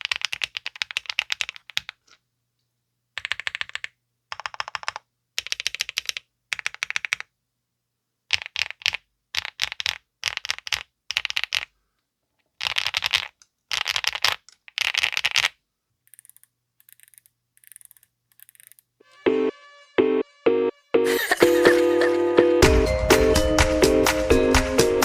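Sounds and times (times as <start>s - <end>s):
mechanical keyboard typing: 0.0s - 2.2s, 3.2s - 7.3s, 8.3s - 11.7s, 12.6s - 18.9s.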